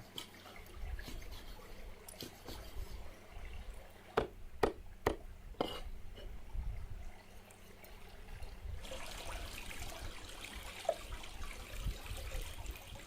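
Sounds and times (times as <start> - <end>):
sharp knocks: 4.2 - 5.8.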